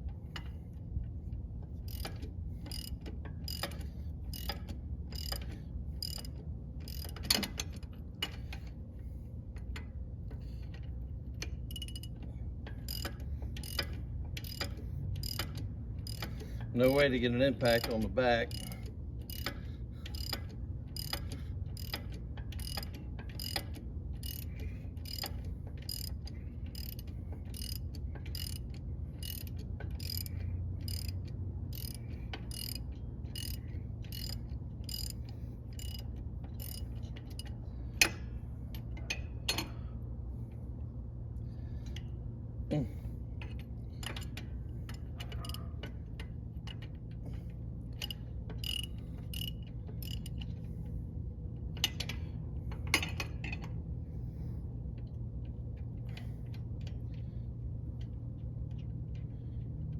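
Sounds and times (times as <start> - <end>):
ratchet wrench clicking: 1.8 - 8.7, 10.6 - 39.8, 43.4 - 47.0, 47.9 - 50.6.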